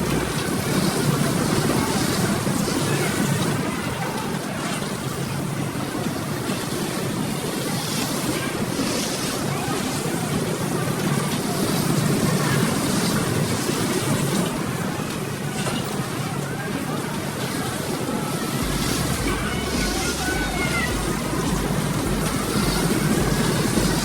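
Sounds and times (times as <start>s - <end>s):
children's play area din: 0.0s - 24.0s.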